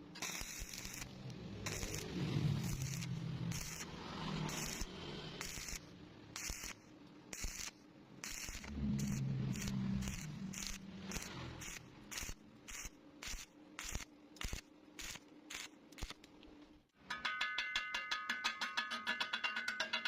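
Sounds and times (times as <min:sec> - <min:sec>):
rhythmic scraping on metal: 0:07.4 - 0:15.6.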